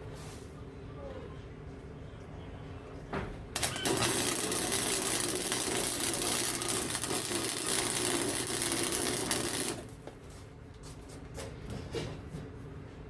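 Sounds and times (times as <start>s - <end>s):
welding arc crackling: 3.6s - 10.0s.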